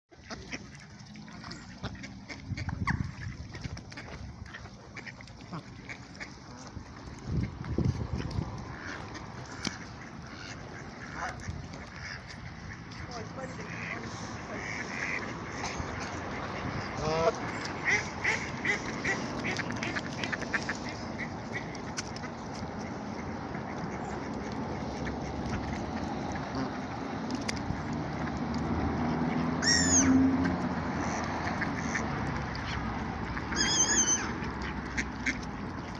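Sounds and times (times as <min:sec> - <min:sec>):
ducks calling: 0:00.1 - 0:35.9
ducks clicking while feeding: 0:00.1 - 0:35.9
duck call: 0:29.6 - 0:30.2, 0:33.5 - 0:34.4.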